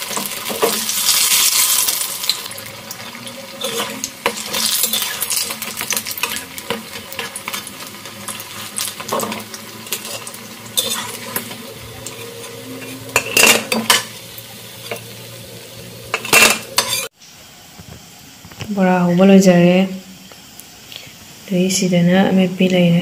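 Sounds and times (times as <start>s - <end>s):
metal spatula scraping a pan: 0.0s - 2.4s, 3.0s - 15.3s, 16.1s - 17.1s
fritters sizzling in oil: 0.0s - 18.6s.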